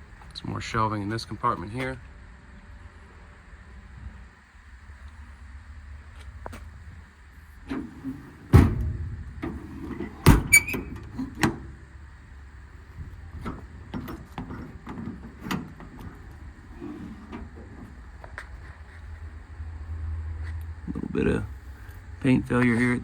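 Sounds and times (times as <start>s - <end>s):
latches clicking and rattling: 7.7s - 11.8s, 12.8s - 18.6s
metal doors banging shut: 7.7s - 11.9s, 12.8s - 18.2s.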